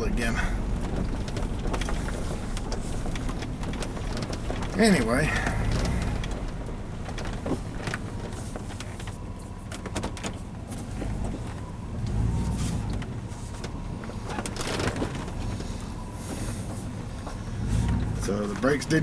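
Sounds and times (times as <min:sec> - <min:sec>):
engine and road rumble: 0:00.0 - 0:19.0
short clicks and rattles: 0:00.4 - 0:09.1.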